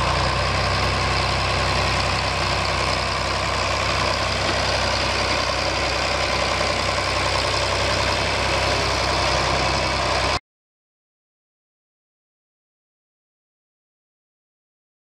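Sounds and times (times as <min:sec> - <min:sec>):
tractor engine idling: 0:00.0 - 0:10.4.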